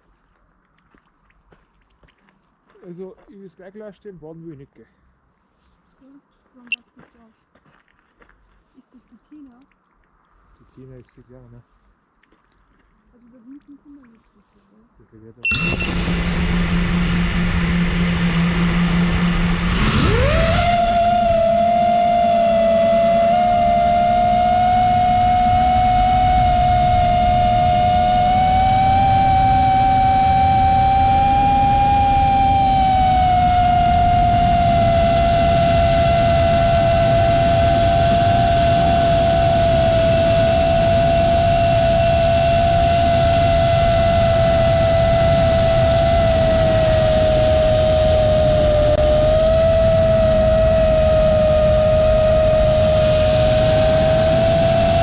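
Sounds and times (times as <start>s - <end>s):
drone motors whining: 15.4s - 55.0s
wind noise rumble: 15.5s - 55.0s.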